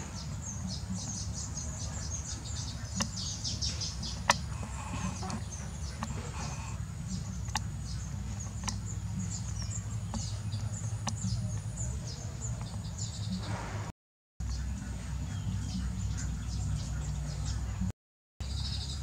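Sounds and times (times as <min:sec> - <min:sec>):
small birds chirping: 0:00.0 - 0:19.0
sharp clicks: 0:07.3 - 0:11.7.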